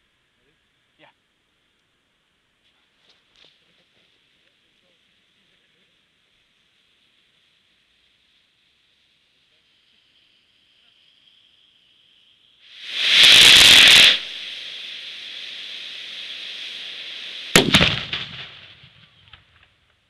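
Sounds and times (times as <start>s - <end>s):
firework hiss: 3.0s - 20.0s
firework rushing burst: 12.6s - 19.7s
firework sharp cracks: 12.7s - 20.0s.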